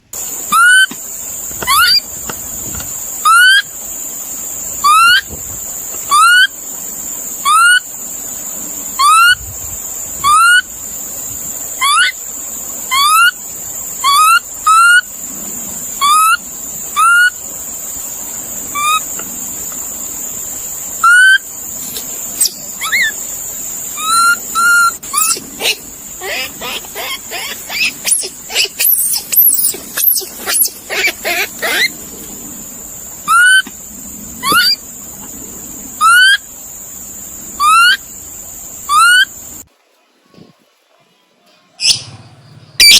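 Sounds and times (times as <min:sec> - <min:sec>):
animal whistled calls: 0:00.4 - 0:01.0, 0:01.6 - 0:02.0, 0:03.2 - 0:03.7, 0:04.8 - 0:05.3, 0:06.1 - 0:06.5, 0:07.4 - 0:07.8, 0:11.8 - 0:12.2, 0:12.9 - 0:13.4, 0:14.0 - 0:15.1, 0:16.0 - 0:16.4, 0:17.0 - 0:17.4, 0:21.0 - 0:21.4, 0:22.4 - 0:23.2, 0:24.0 - 0:31.9, 0:33.3 - 0:33.7, 0:34.4 - 0:34.8, 0:36.0 - 0:36.4, 0:37.6 - 0:38.0, 0:38.9 - 0:39.3.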